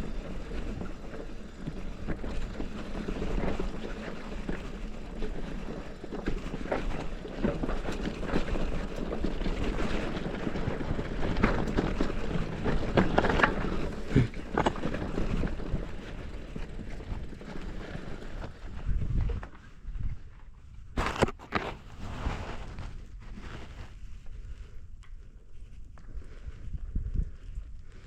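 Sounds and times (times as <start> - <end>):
bike knocking and rattling: 0.0 - 21.8
bike tyres on loose dirt: 0.0 - 28.0
wind noise on microphone: 0.0 - 28.0.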